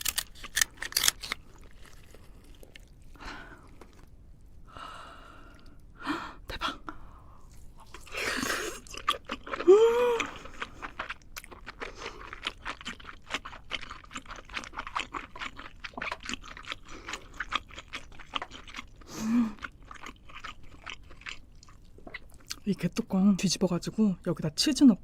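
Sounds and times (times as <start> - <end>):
person chewing crunchy food: 0.0 - 4.2, 7.4 - 22.8
vocal sound of enjoyment: 9.6 - 10.4.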